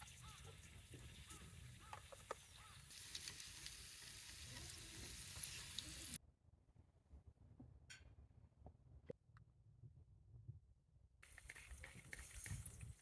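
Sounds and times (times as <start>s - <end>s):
faint sizzling hiss with crackles: 0.0s - 6.2s.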